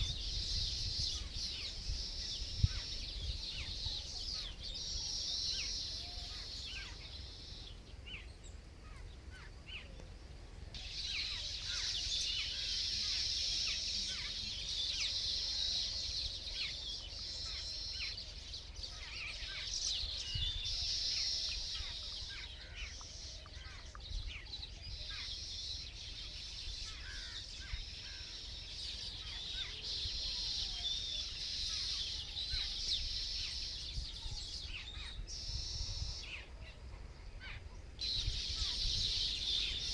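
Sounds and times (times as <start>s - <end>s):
small birds chirping chorus: 0.0s - 39.9s.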